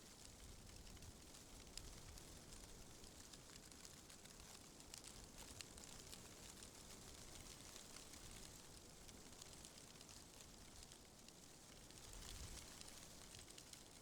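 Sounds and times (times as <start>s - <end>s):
small crackling ticks: 0.0s - 14.0s.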